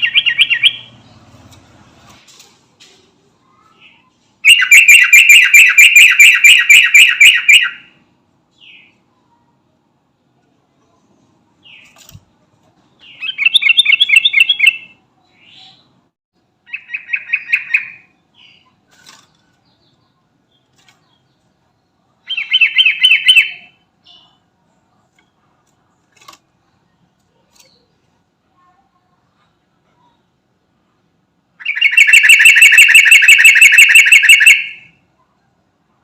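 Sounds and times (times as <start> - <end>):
bird singing rapid notes: 0.0 - 1.4, 4.4 - 7.9, 13.0 - 15.9, 31.6 - 34.9
bird call notes: 4.4 - 7.9, 31.6 - 34.9.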